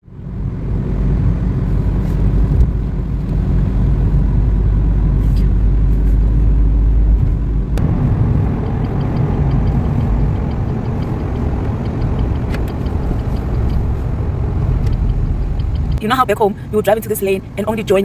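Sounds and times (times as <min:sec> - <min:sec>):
road and engine rumble in car: 0:00.0 - 0:18.0
faint regular ticking: 0:07.8 - 0:16.1.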